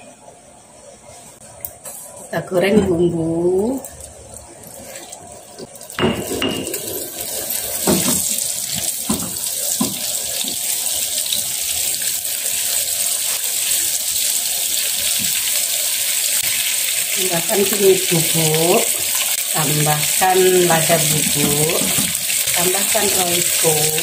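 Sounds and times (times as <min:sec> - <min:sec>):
spice paste sizzling in oil: 0:06.8 - 0:24.0.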